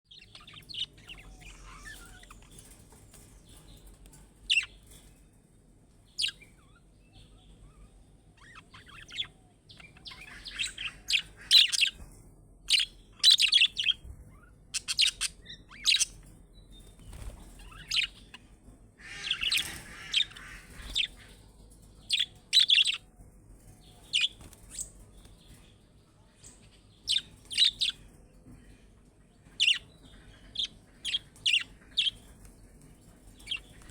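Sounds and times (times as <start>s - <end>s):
budgerigars chirping: 8.4s - 12.0s, 14.7s - 16.2s, 19.0s - 21.4s, 22.1s - 23.0s, 29.6s - 32.2s.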